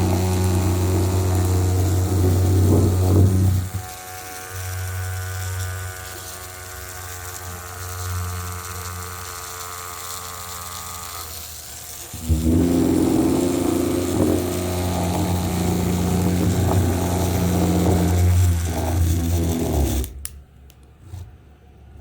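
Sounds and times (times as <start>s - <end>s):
louder motor running: 0.0s - 20.2s
small toy motor humming: 0.0s - 20.3s.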